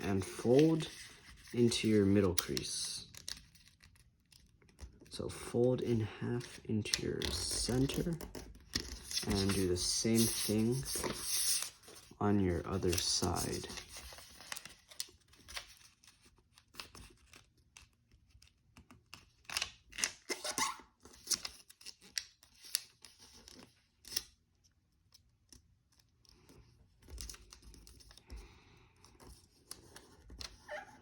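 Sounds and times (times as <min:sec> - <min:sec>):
paper crackling and scraping: 0:00.2 - 0:05.0, 0:07.2 - 0:18.5.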